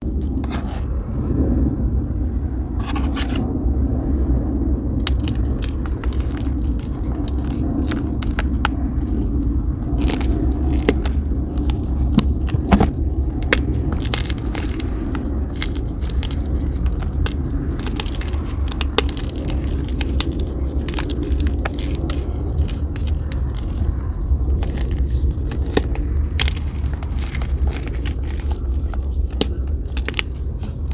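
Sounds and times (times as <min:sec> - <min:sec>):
low scraping rumble: 0:00.0 - 0:30.9
chalk crumbling and crunching: 0:05.0 - 0:30.9.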